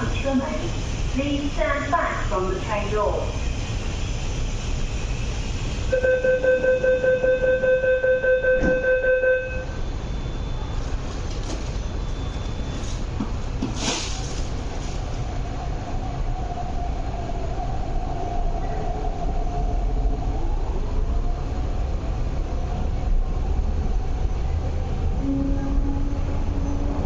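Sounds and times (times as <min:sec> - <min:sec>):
train running rumble: 0:00.0 - 0:27.0
brief hiss: 0:13.7 - 0:14.4.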